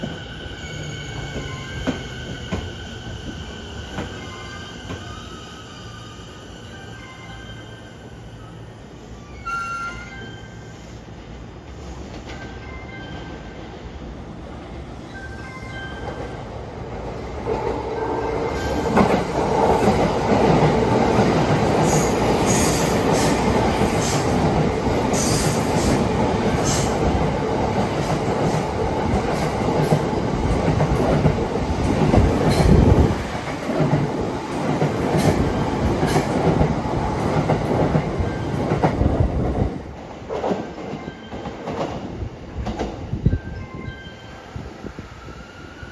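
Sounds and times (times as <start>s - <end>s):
train wheels rumbling over rail joints: 17.4s - 43.2s.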